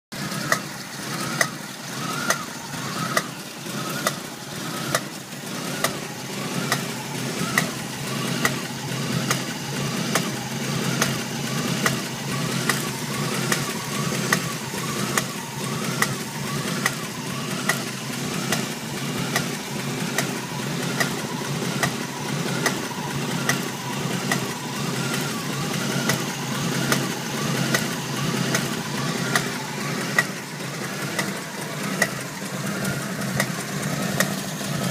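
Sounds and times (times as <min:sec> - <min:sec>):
car engine idling: 0:00.1 - 0:34.9
sharp engine knock: 0:10.1 - 0:24.5.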